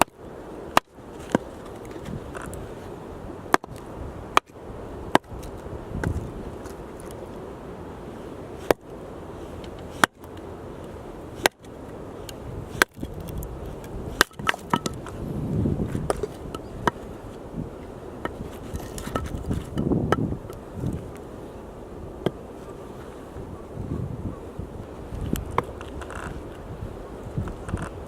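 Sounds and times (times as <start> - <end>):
axe chopping firewood: 0.0 - 2.5, 3.5 - 6.2, 8.6 - 8.8, 9.7 - 10.4, 11.4 - 11.7, 12.7 - 15.2
low rumbling: 12.1 - 22.6.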